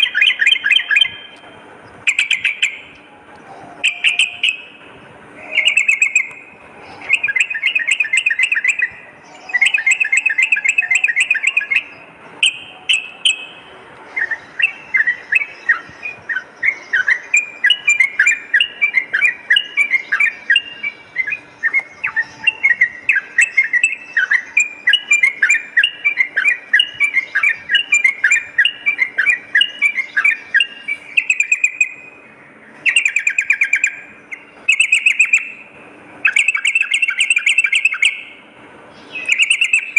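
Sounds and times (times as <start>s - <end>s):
bird singing chattering trills: 0.0s - 39.9s.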